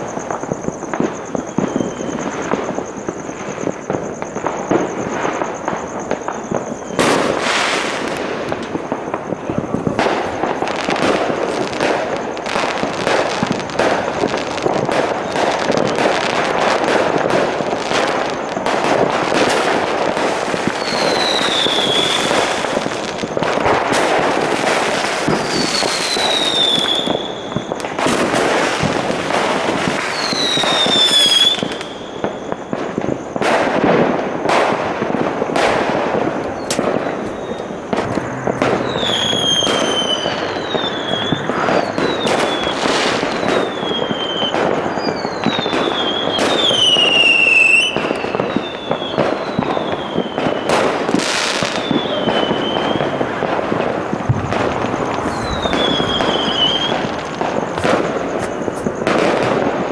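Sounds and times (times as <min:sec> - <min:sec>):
falling firework whistles: 0:00.0 - 0:59.9
fireworks bangs and crackling: 0:00.0 - 0:59.9.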